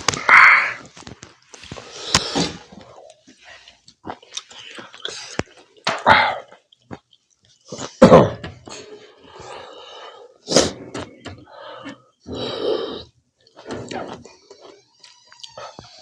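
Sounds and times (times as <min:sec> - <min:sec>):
wet chewing and mouth smacks: 0:02.9 - 0:05.8, 0:06.5 - 0:08.0.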